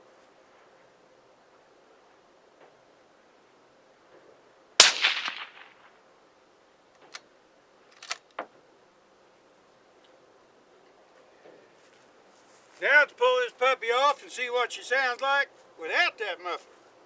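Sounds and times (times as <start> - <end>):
suppressed rifle shot: 4.8 - 6.0.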